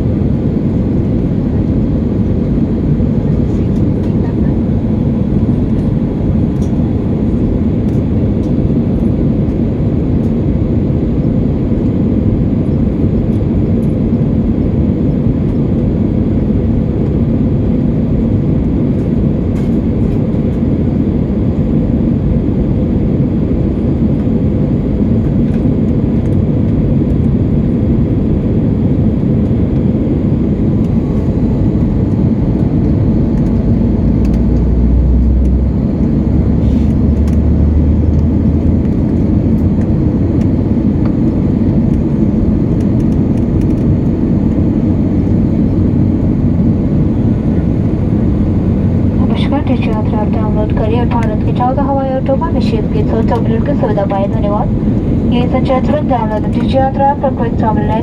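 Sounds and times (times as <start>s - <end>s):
airliner cabin rumble: 0.0s - 58.0s.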